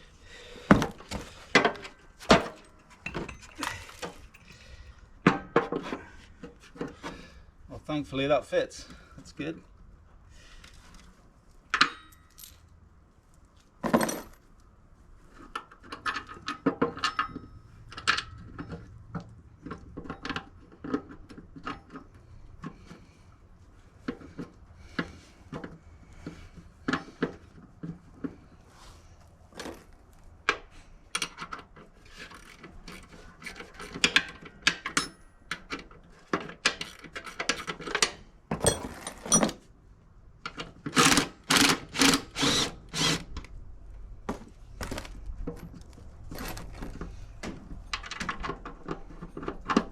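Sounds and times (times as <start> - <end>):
metal tools clinking and knocking: 1.7 - 5.9, 34.8 - 35.3, 38.5 - 39.6.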